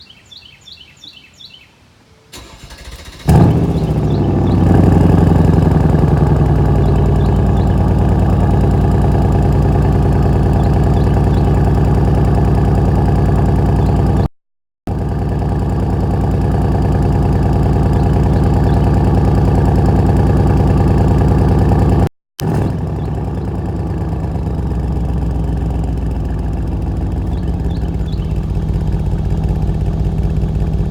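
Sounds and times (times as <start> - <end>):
bird chirping: 0.0 - 1.8, 3.7 - 5.8, 6.6 - 8.7, 10.2 - 11.7, 13.6 - 14.2, 17.8 - 19.3, 25.8 - 30.2
car engine starting and idling: 2.3 - 14.3, 14.9 - 30.9.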